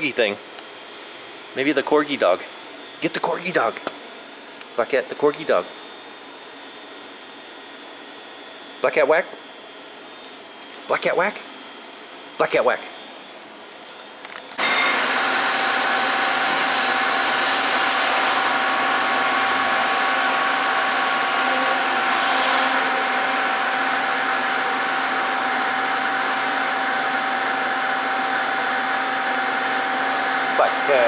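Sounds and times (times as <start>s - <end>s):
blower motor rushing air: 14.6s - 31.0s.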